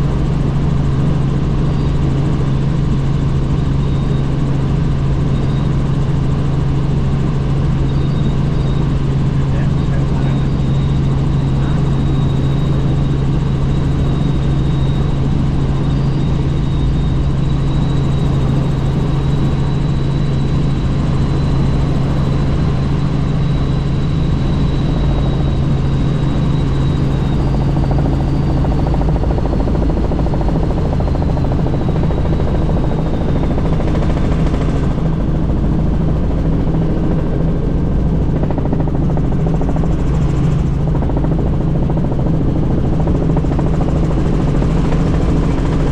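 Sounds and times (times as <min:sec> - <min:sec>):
helicopter rotor and engine drone: 0:00.0 - 0:45.9
faint high whine: 0:01.5 - 0:29.5.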